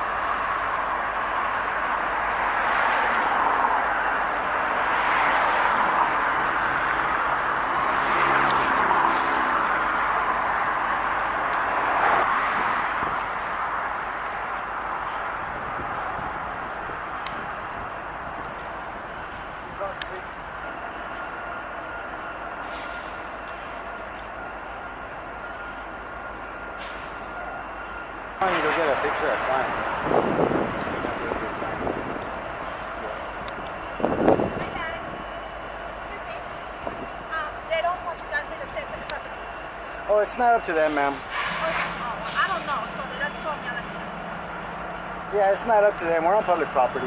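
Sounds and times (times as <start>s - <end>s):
vehicle rumble and hiss: 0.0s - 20.5s, 22.5s - 24.4s, 26.7s - 47.0s
road traffic noise: 0.0s - 47.0s
vehicle engine passing: 4.5s - 12.7s.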